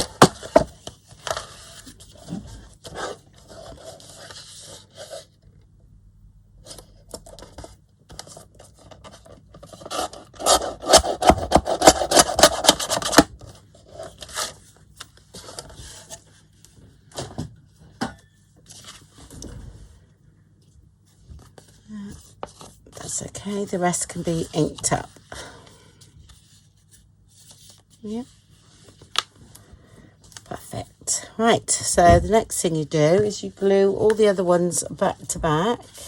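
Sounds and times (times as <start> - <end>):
paper being trimmed: 9.9 - 13.2.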